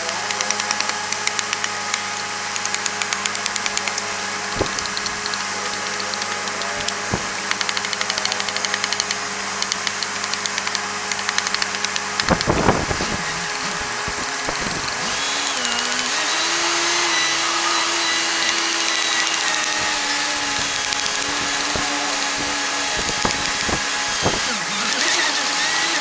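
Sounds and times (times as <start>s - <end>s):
fast ticking: 0.3s - 16.2s, 18.4s - 26.0s
machine motor running: 2.6s - 26.0s
sharp knocks: 4.5s - 5.5s, 6.8s - 8.1s, 11.4s - 15.2s, 19.1s - 25.2s.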